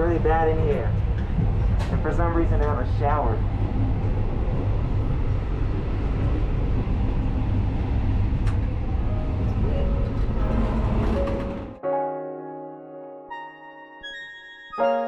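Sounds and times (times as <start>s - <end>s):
train wheels rumbling: 0.0s - 11.8s.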